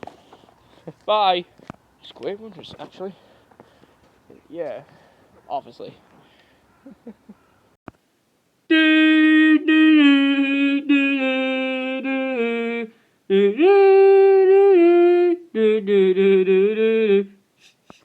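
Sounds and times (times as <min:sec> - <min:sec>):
person humming a wordless tune: 0:08.7 - 0:18.0.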